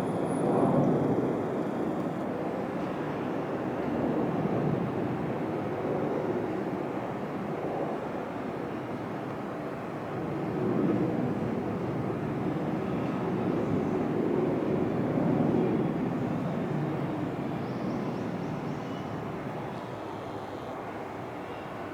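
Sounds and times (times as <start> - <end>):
fighter jet engine roar: 0.0 - 5.9.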